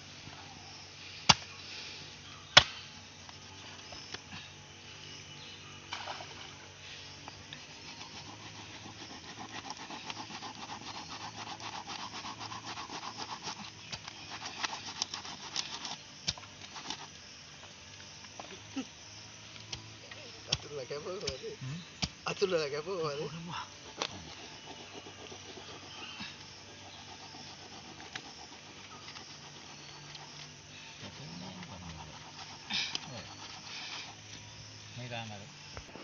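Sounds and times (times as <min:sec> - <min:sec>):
knife sawing and scraping: 0:07.7 - 0:17.2, 0:23.9 - 0:30.6, 0:31.3 - 0:34.3.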